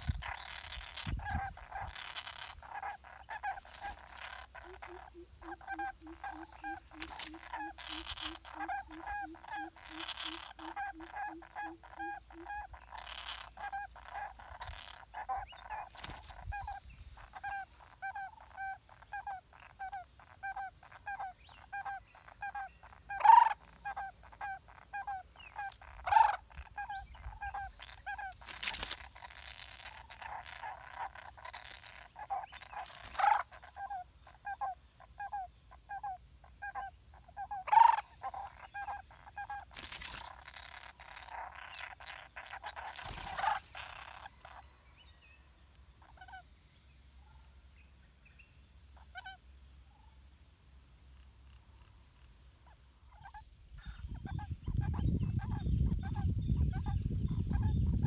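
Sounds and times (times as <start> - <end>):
bird calling repeated note: 0.0 - 28.4, 29.2 - 44.7
faint high whine: 0.0 - 58.0.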